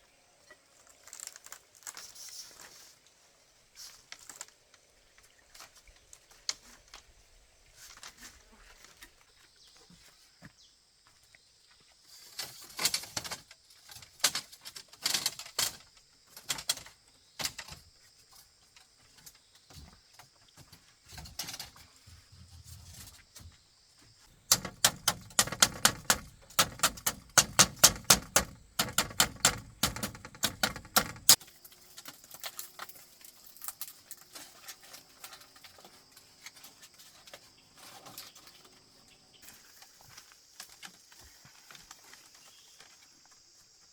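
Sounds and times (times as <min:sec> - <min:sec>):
knocks and clatter: 0:24.5 - 0:31.4
sharp rapid strikes: 0:24.5 - 0:31.4.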